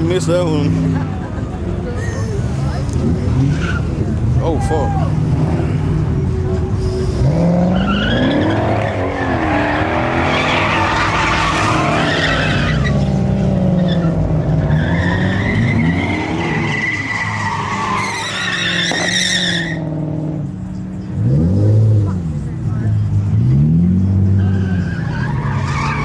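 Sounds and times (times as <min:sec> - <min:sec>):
truck engine revving: 0:02.3 - 0:26.0
tyres squealing: 0:07.2 - 0:19.9, 0:24.3 - 0:26.0.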